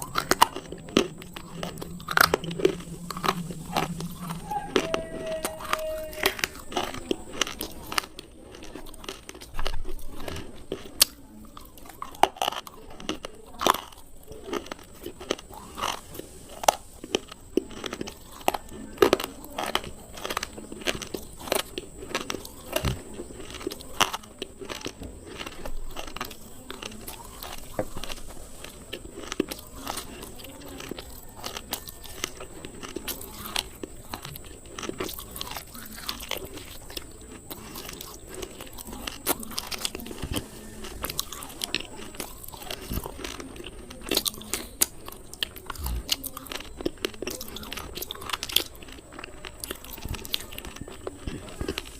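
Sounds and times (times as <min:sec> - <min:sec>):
teeth crunching slate pencils: 0:00.0 - 0:51.9.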